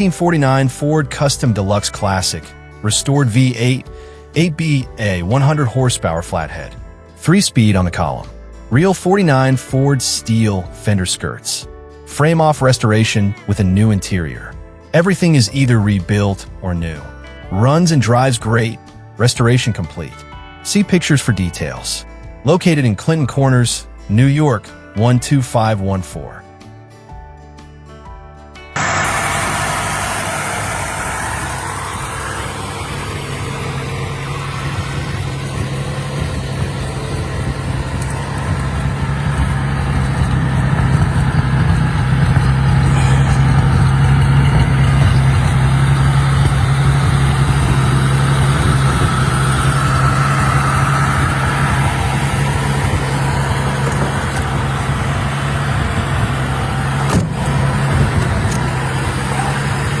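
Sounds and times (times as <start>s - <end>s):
car engine humming: 0.0s - 6.7s, 28.6s - 60.0s.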